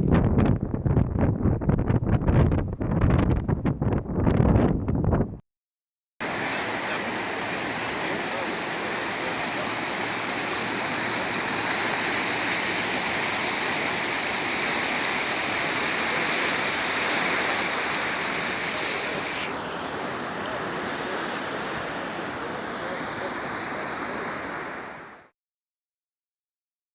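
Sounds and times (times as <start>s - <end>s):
floodwater rushing: 6.2s - 25.3s.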